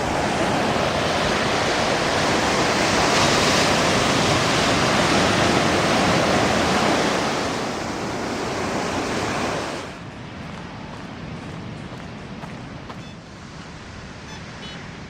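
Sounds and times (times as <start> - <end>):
ocean surf rushing onto beach: 0.0 - 15.0.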